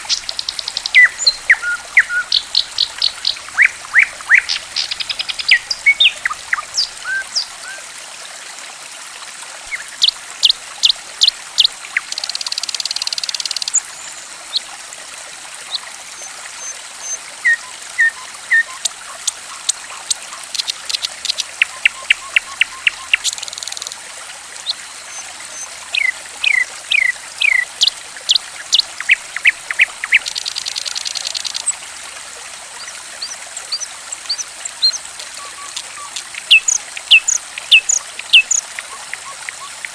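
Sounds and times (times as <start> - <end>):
running water trickling: 0.0 - 39.9
songbird chirping and whistling: 0.1 - 7.2, 35.4 - 38.6.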